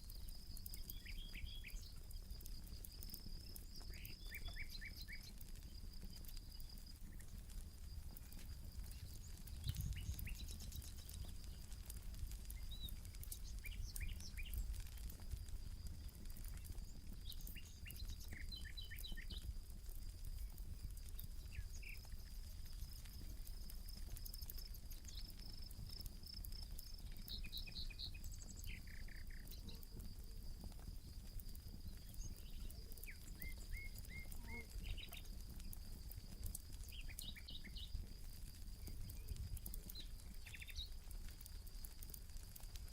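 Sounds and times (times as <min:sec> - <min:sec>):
campfire crackling: 0:00.0 - 0:42.9
bird chirps: 0:00.5 - 0:02.0, 0:03.4 - 0:05.4, 0:08.9 - 0:11.6, 0:12.5 - 0:14.8, 0:17.2 - 0:19.5, 0:26.9 - 0:29.8, 0:31.9 - 0:35.3, 0:36.8 - 0:38.0, 0:38.8 - 0:40.9.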